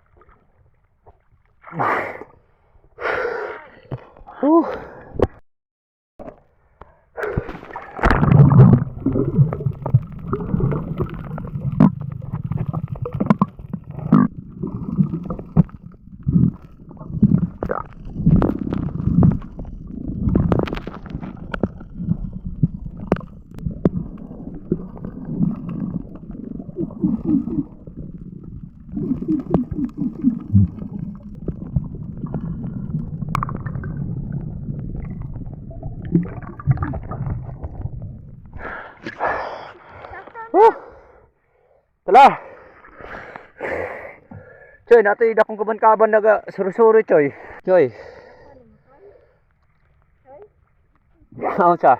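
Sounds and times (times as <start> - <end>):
underwater gurgling and bubbling: 7.3 - 40.0.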